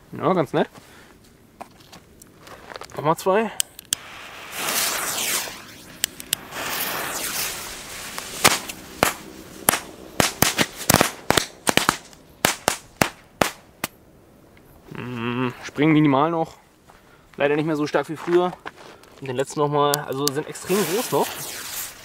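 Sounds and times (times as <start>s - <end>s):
firecracker fuses fizzing: 3.9s - 12.8s, 20.6s - 22.0s
firecrackers banging: 4.0s - 13.6s.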